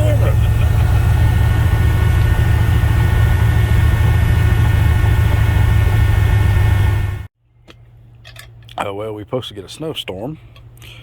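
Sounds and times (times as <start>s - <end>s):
pickup truck engine running: 0.0s - 7.3s.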